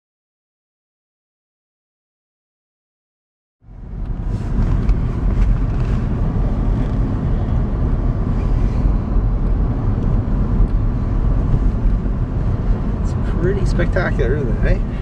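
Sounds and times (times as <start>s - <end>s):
car driving on snow: 3.6s - 15.0s
hiss of tyres: 4.1s - 7.5s, 8.2s - 9.2s.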